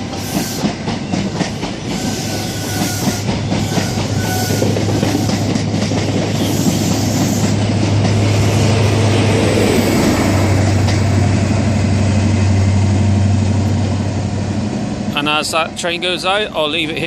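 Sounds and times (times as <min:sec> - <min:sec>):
train wheels clickety-clack: 0:00.0 - 0:11.8
diesel train engine drone: 0:00.0 - 0:17.0.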